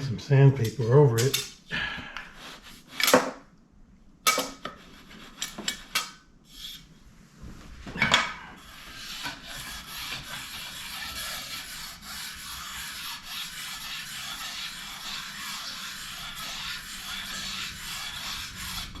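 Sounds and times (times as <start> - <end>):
sandpaper rubbing on wood: 8.6 - 19.0.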